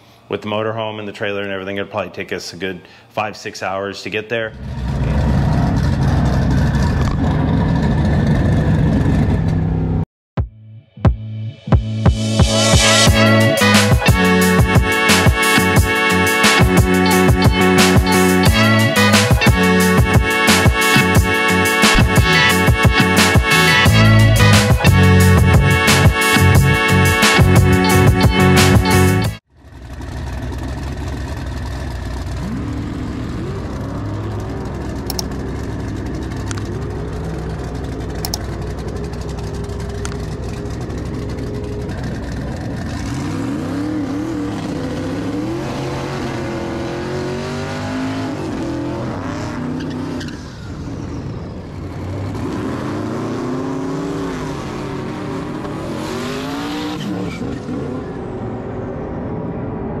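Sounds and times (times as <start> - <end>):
muscle car engines revving: 4.5 - 10.0, 12.8 - 59.6
car engine idling: 14.2 - 45.4
cars passing: 14.3 - 60.0
sharp clicks: 35.1 - 35.4.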